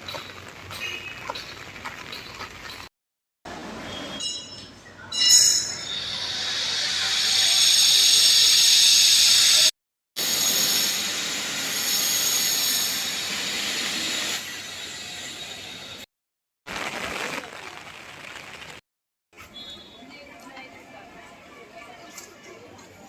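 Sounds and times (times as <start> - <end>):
high-pitched squeal: 5.2 - 16.0
heavy rain falling: 16.7 - 18.8.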